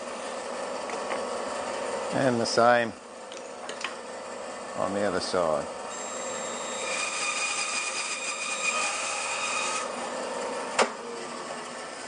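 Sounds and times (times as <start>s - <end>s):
bandsaw cutting wood: 5.9s - 10.2s.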